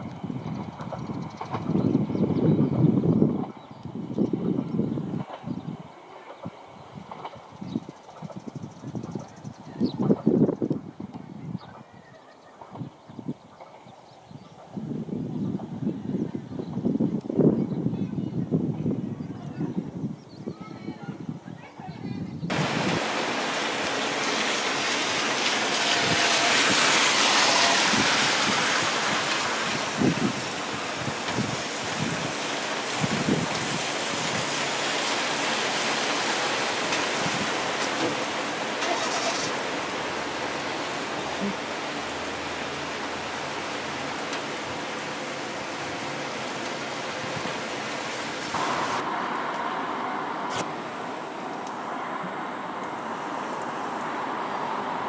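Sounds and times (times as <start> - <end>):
downpour hissing: 22.5 - 55.0.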